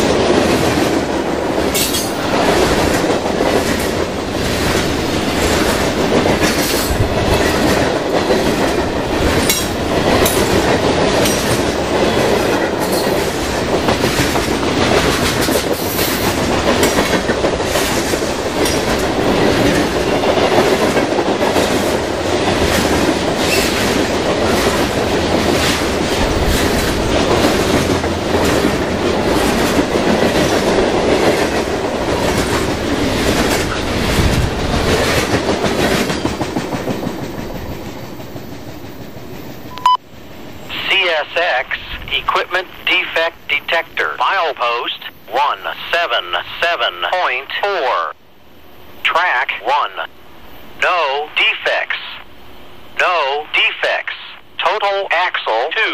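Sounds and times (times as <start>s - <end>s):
train wheels clacking on rails: 0.0s - 39.7s.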